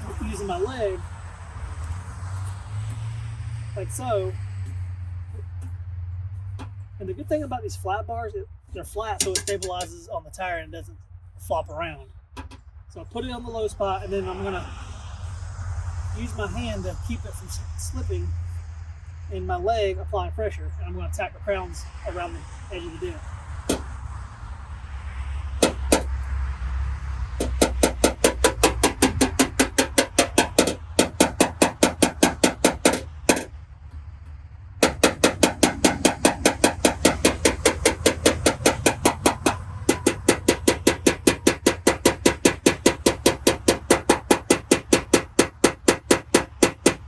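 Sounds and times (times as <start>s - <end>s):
hammer tapping car body panel: 9.2s - 9.9s, 23.7s - 24.0s, 25.6s - 26.2s, 27.4s - 33.5s, 34.8s - 47.0s.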